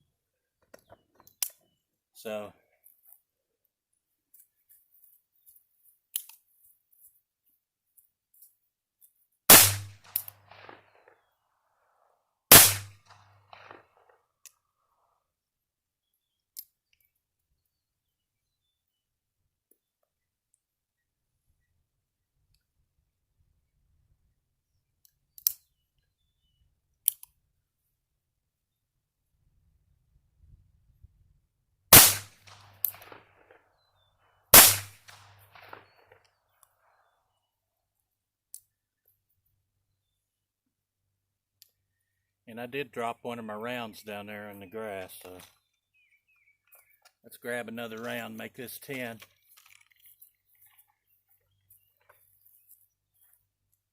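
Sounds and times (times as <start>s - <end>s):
gunshot crack with echo: 9.5s - 11.0s, 12.5s - 13.8s, 31.9s - 33.3s, 34.6s - 36.0s.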